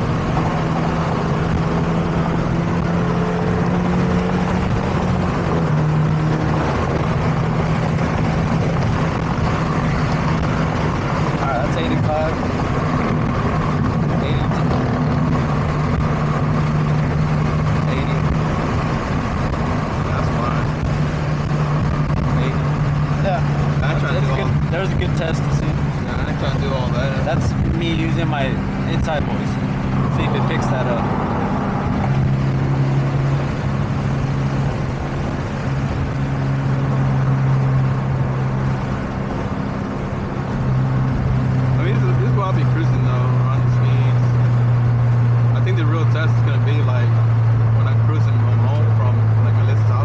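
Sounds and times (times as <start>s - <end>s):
car engine droning: 0.0s - 50.0s
wind and road noise: 0.0s - 50.0s
wind rushing: 27.3s - 41.8s.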